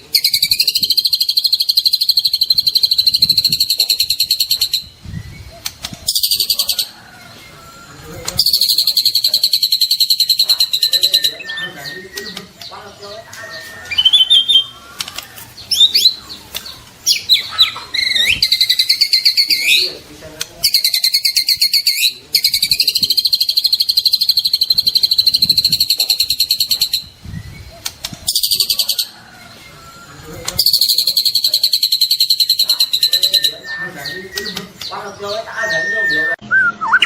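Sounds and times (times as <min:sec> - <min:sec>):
bird singing whistles and trills: 0:00.0 - 0:06.8, 0:08.4 - 0:14.8, 0:17.0 - 0:19.9, 0:30.6 - 0:37.0.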